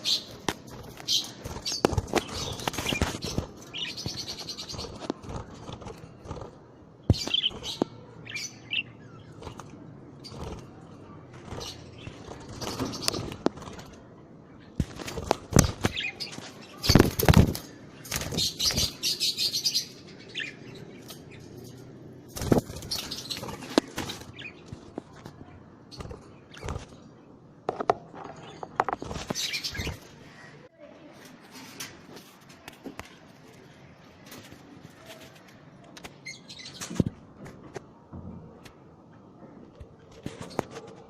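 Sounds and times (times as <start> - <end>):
wings flapping: 0.2 - 7.9, 9.3 - 14.1, 14.8 - 19.2, 22.3 - 27.0.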